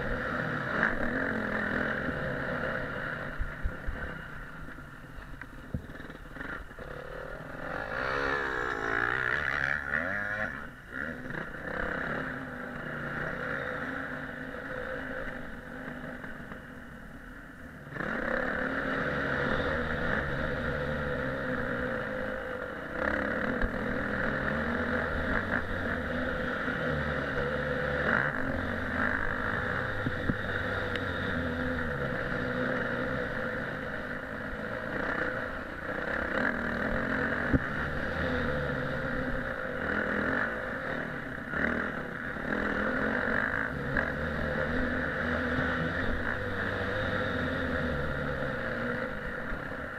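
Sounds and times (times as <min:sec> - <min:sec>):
motorcycle engine revving: 0:00.0 - 0:16.9, 0:17.8 - 0:49.9.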